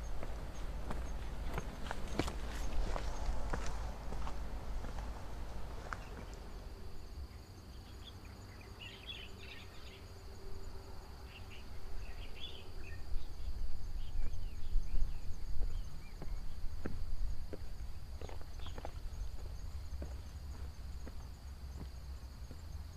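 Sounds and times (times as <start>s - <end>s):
wind rumble on microphone: 0.0s - 7.2s, 11.7s - 20.1s
insects droning: 0.0s - 22.9s.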